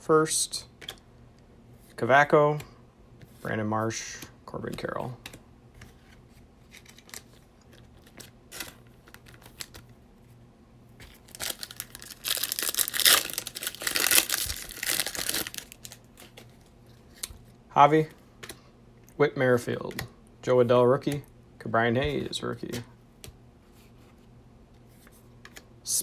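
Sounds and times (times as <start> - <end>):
wrapper tearing and crinkling: 11.1 - 16.4.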